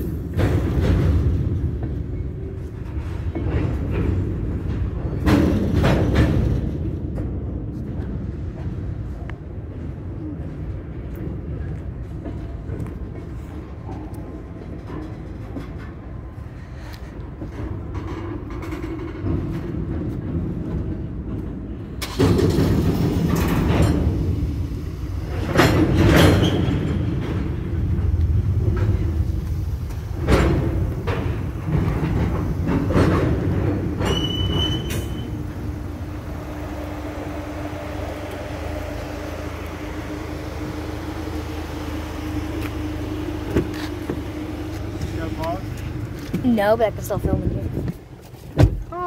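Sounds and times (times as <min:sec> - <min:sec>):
heavy rumble of steel wheels: 0:00.0 - 0:49.0.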